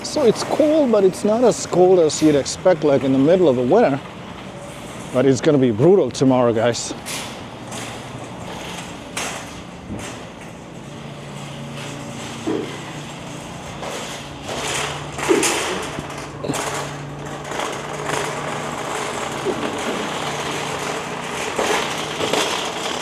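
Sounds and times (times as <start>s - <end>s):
knocks and clatters: 7.0s - 23.0s.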